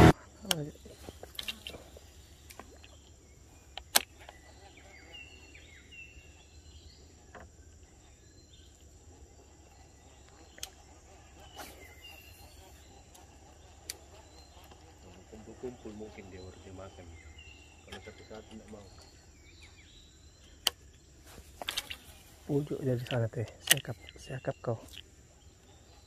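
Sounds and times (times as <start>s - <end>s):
bird chirps: 0.0s - 26.0s
insects droning: 0.0s - 26.0s
sharp clicks: 3.7s - 4.4s, 23.0s - 25.1s.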